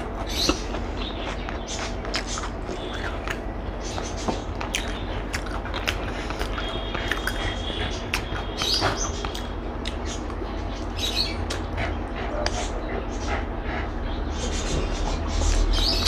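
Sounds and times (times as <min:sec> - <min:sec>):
chewing and mouth smacks: 0:00.0 - 0:10.8, 0:11.4 - 0:11.8
low steady hum: 0:00.0 - 0:16.0.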